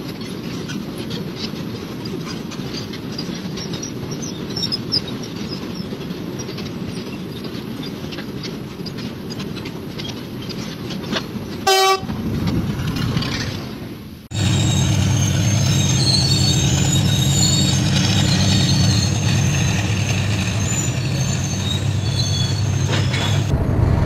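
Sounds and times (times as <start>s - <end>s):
wheel clicks over rail joints: 0.0s - 14.0s
freight train rumbling past: 0.0s - 24.0s
train horn toot: 11.6s - 12.2s.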